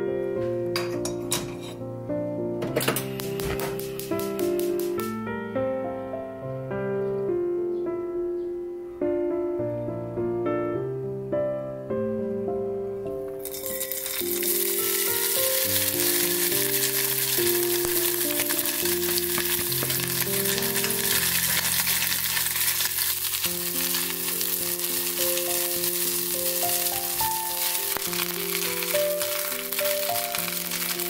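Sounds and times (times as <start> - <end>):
fish sizzling in hot oil: 13.4 - 31.0
spatula stirring: 13.4 - 31.0.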